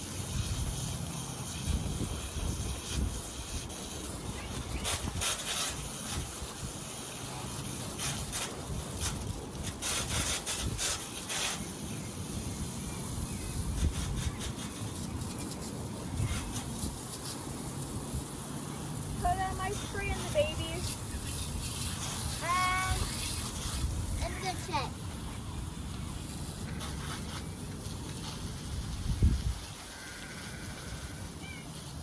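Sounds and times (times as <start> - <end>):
water spray hissing on wire cages: 0.0 - 32.0.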